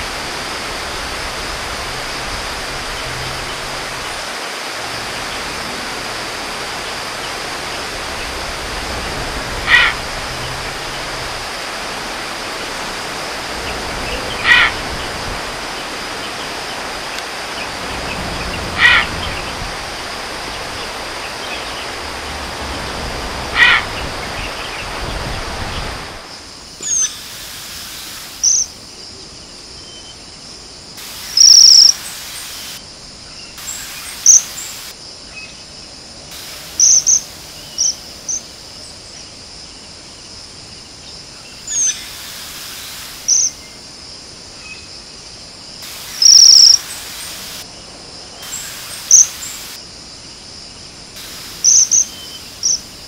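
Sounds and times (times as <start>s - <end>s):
steady hiss: 0.0s - 53.0s
bird calling: 14.0s - 15.1s, 17.6s - 19.6s, 31.1s - 32.8s, 45.9s - 47.6s, 51.2s - 52.9s
high thin bird chirps: 26.8s - 27.2s, 31.3s - 32.8s, 33.4s - 34.8s, 36.8s - 38.4s, 45.9s - 47.6s, 48.4s - 49.8s, 51.5s - 52.8s
bird trill: 31.4s - 32.0s, 46.2s - 47.0s.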